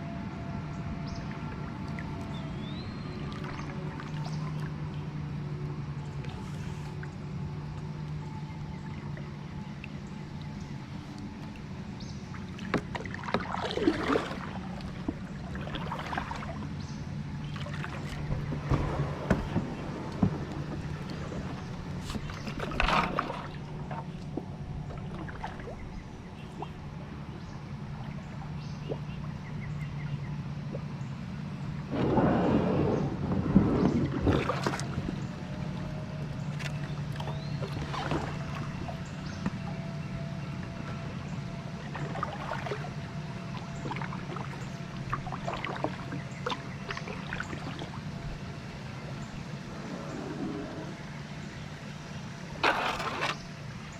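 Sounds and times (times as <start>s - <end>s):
low rumble: 0.0s - 53.9s
paddle splashing water: 0.3s - 53.9s
sharp knocks on kayak: 18.2s - 21.2s.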